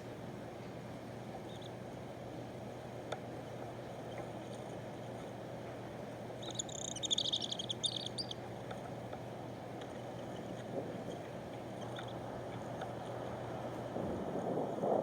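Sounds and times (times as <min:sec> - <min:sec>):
low background hum: 0:00.0 - 0:15.0
small bird twittering: 0:06.4 - 0:08.4, 0:11.8 - 0:12.2.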